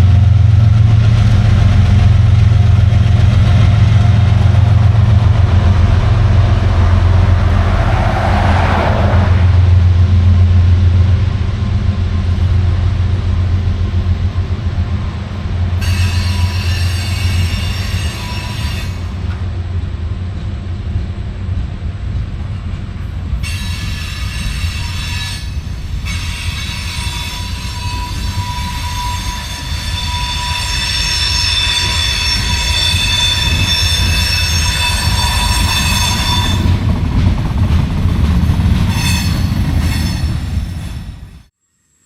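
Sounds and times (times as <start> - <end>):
freight train rumbling past: 0.0 - 41.6
steel wheels squealing on rails: 15.7 - 19.5, 23.0 - 37.1, 38.4 - 41.5.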